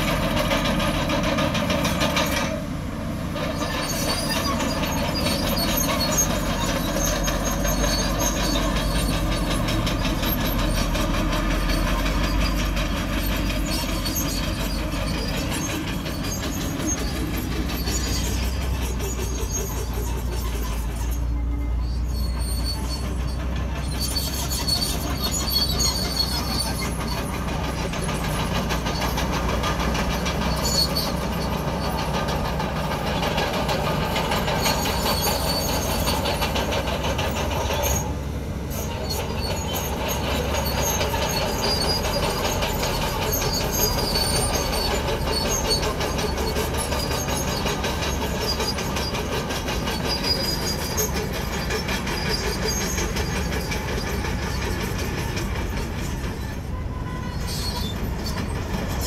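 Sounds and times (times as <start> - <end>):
diesel engine drone: 0.0 - 59.0
steel tracks clanking and squealing: 0.0 - 59.0.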